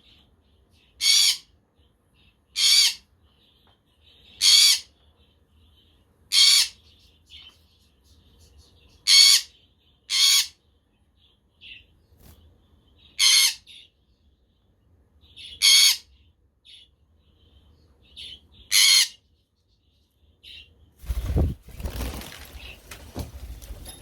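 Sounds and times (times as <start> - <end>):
parrots squawking: 1.0 - 1.5, 2.5 - 3.1, 4.4 - 4.9, 6.3 - 6.8, 9.0 - 10.6, 13.1 - 13.9, 15.4 - 16.2, 18.2 - 19.2.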